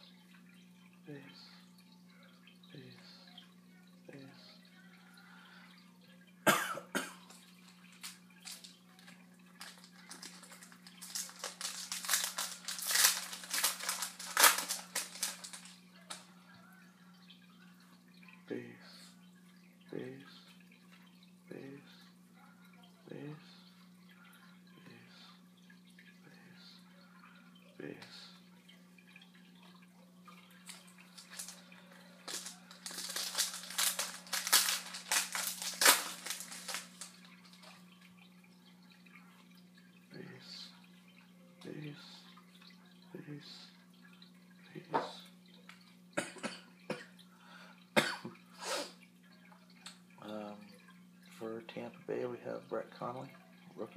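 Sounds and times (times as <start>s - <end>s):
steady electrical hum: 0.0s - 53.9s
card pack wrappers crinkling: 7.3s - 16.3s, 30.6s - 37.8s
cards being handled: 9.6s - 16.2s, 32.2s - 37.2s.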